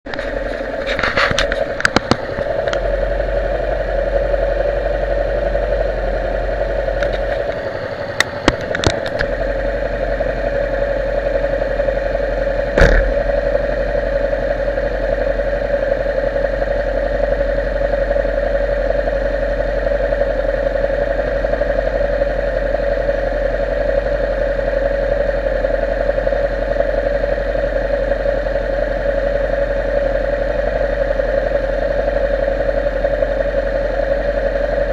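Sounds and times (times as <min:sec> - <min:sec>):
motorcycle engine running: 0:00.0 - 0:34.9
sharp clicks and knocks: 0:00.1 - 0:02.8, 0:08.2 - 0:09.3, 0:12.8 - 0:13.3.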